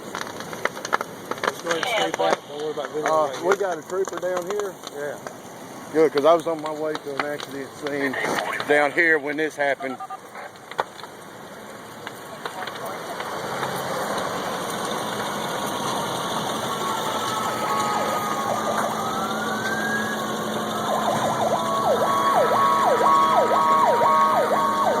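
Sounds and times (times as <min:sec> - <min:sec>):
emergency vehicle siren: 0:12.5 - 0:25.0.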